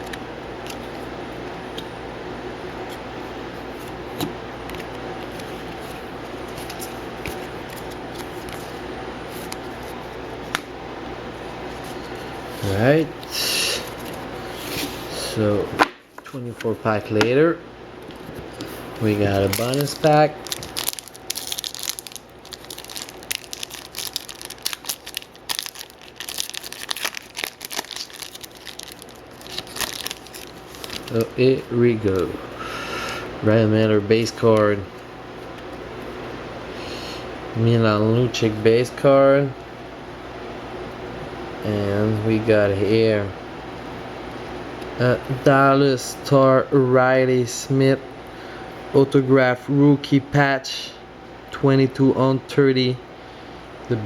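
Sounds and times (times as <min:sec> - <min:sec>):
electrical hum: 0:00.0 - 0:54.0
cards and foil packs handled: 0:18.2 - 0:32.4.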